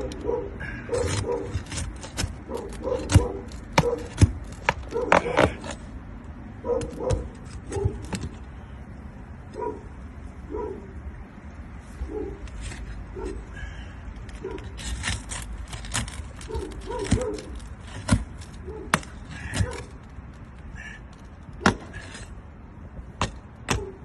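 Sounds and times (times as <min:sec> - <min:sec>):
dog barking: 0:00.0 - 0:01.6, 0:02.5 - 0:04.2, 0:04.9 - 0:05.4, 0:06.6 - 0:08.1, 0:09.6 - 0:09.9, 0:10.5 - 0:10.9, 0:12.1 - 0:12.4, 0:13.1 - 0:13.5, 0:14.4 - 0:14.7, 0:16.5 - 0:17.5, 0:18.6 - 0:18.9, 0:19.6 - 0:19.9, 0:23.7 - 0:24.0.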